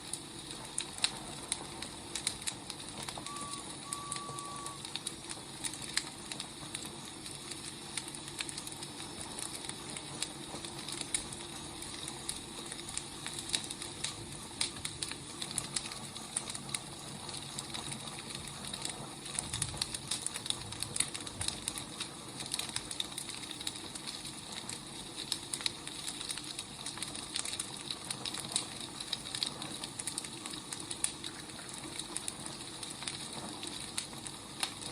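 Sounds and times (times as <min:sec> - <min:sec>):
wood fire crackling: 0:00.0 - 0:34.9
brief high tone: 0:03.3 - 0:04.8.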